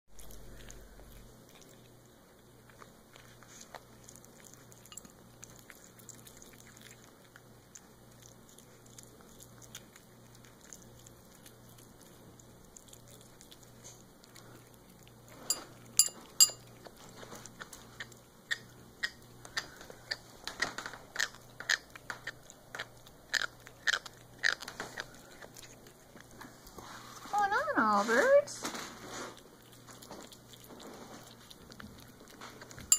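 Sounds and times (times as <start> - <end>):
jaw clicking: 17.5 - 26.3.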